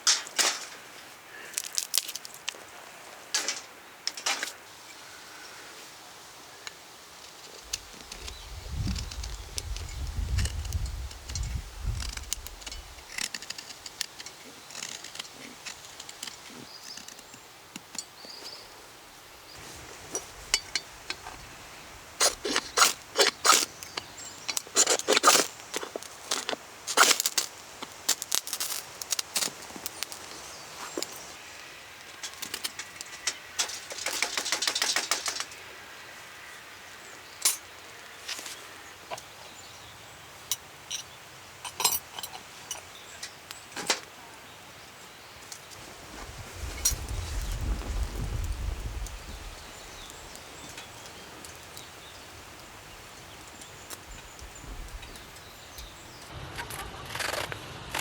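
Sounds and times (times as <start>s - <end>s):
small crackles: 0.0s - 5.5s, 6.6s - 18.8s, 19.5s - 35.6s, 45.0s - 58.0s
dry sticks snapping: 1.4s - 2.6s, 6.7s - 18.1s, 22.2s - 31.2s.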